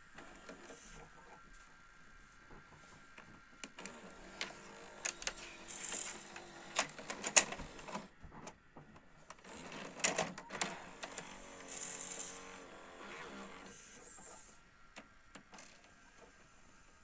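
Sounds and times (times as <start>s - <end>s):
motor whirring: 3.8s - 8.1s, 9.4s - 14.5s.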